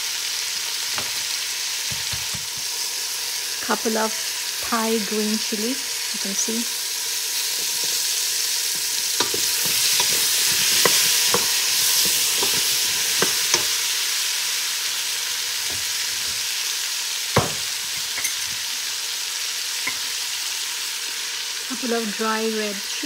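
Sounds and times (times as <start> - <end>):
vegetables sizzling in a pot: 0.0 - 23.0
wooden spatula scraping a pot: 7.5 - 13.8
loud knock: 17.4 - 17.7.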